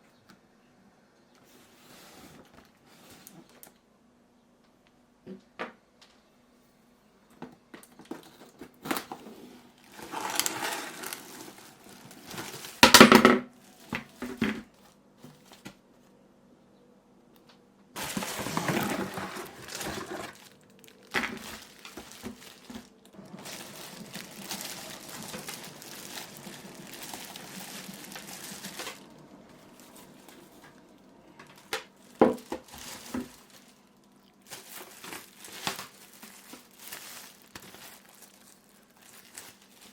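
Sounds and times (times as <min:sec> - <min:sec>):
packaging crinkling and rustling: 0:07.8 - 0:15.8, 0:18.0 - 0:39.9.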